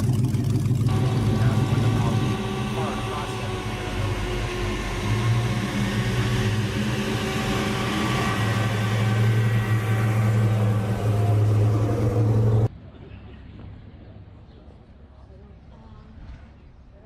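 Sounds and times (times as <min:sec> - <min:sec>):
car engine low rumble: 0:00.0 - 0:12.7.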